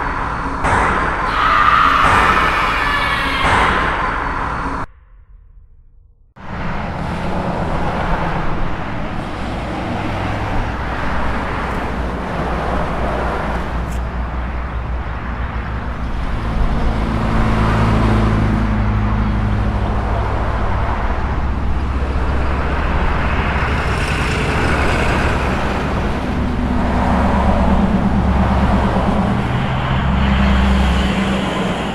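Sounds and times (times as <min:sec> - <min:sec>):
car engine hum: 0:06.4 - 0:31.9
tyre and road noise: 0:06.4 - 0:31.9.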